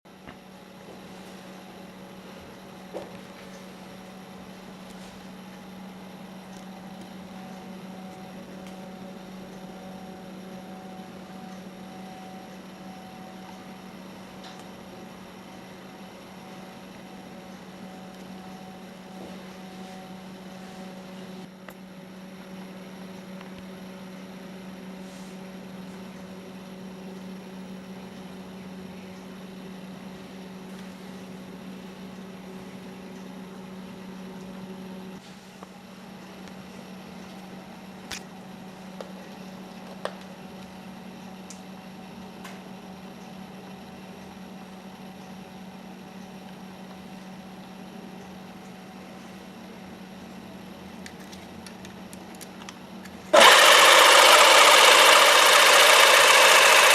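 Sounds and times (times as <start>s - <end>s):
electric drill motor humming: 53.4s - 56.9s.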